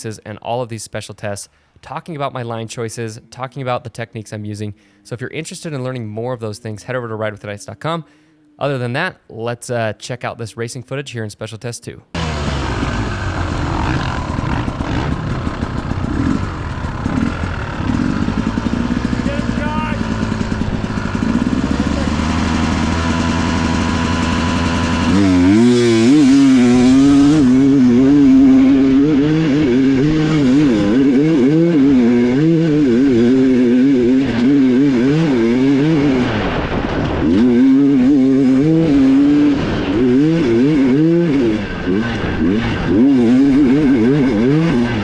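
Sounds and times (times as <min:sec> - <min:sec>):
dirt bike engine revving: 0:12.2 - 0:45.0.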